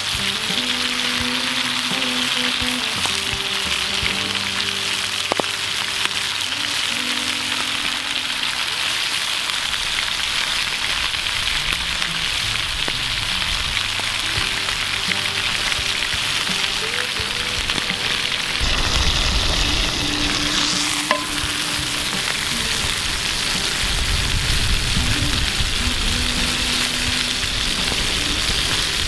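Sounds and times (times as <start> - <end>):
food sizzling in hot oil: 0.0 - 29.0.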